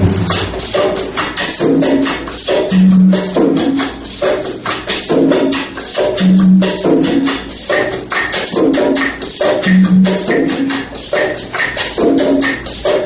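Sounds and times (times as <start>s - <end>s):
lower pitched notes: 0.0s - 1.2s
maracas shaken in quick rhythm: 0.0s - 13.0s.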